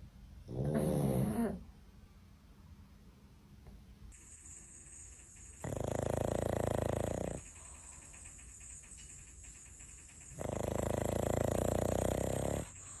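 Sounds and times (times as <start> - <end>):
dog snoring with flutter: 0.4 - 1.7, 5.6 - 7.7, 10.2 - 13.0
quiet breath: 6.1 - 9.0, 10.6 - 13.0.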